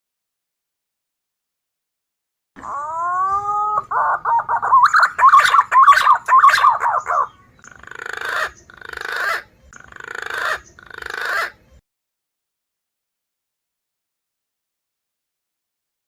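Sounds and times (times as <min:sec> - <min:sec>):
recorded pigeon calls: 0:02.6 - 0:11.8.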